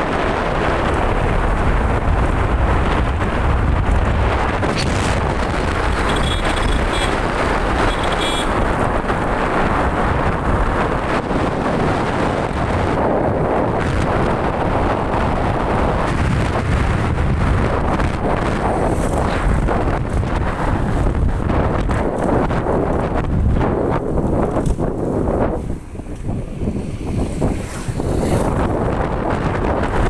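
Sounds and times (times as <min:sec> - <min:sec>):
wind rumbling on microphone: 0:00.0 - 0:30.0
vehicle engine running: 0:05.7 - 0:09.0.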